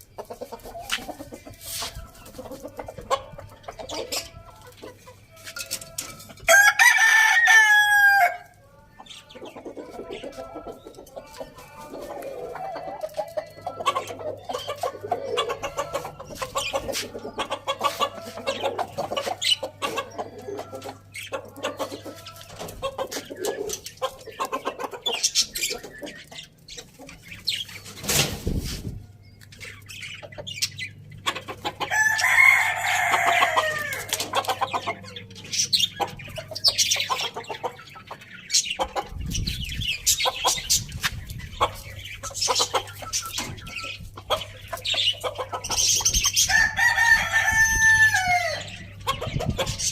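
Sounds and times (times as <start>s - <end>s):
chickens clucking: 0.0s - 49.9s
rooster crowing: 6.5s - 8.5s, 31.9s - 34.2s, 46.5s - 48.7s.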